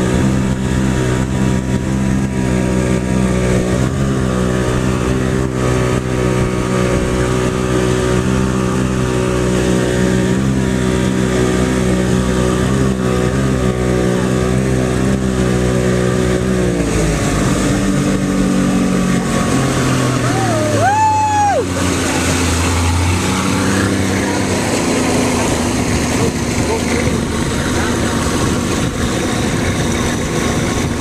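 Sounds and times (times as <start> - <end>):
jet ski engine: 0.0 - 31.0
rushing noise: 16.7 - 31.0.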